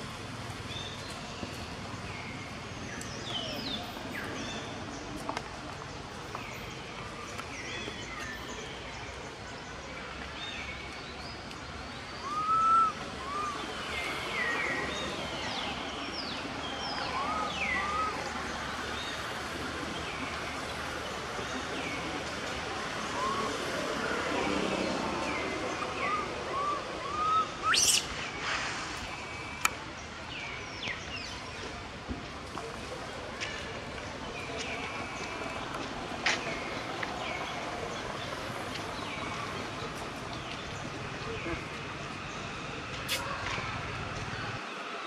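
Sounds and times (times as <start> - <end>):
background hiss: 27.6 - 30.1.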